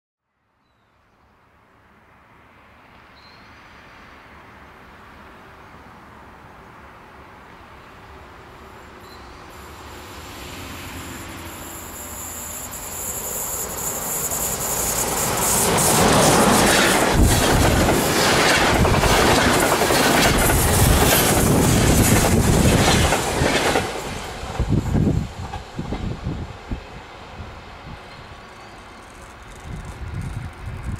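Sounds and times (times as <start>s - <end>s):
train wheels clattering on rails: 13.6s - 26.2s.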